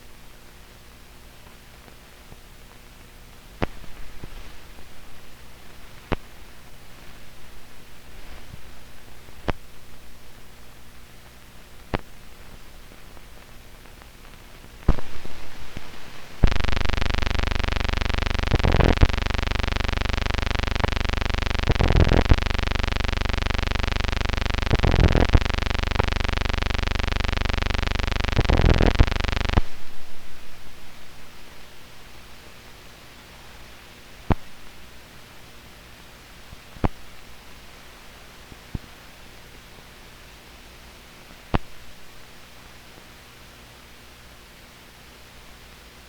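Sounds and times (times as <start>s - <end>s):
loud pulsing buzzing tone: 16.3s - 31.2s
sharp clicks: 16.4s - 29.7s.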